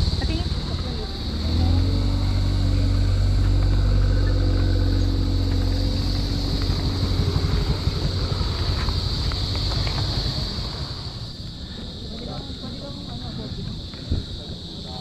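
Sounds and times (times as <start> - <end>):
vehicle engine running: 0.0 - 11.5.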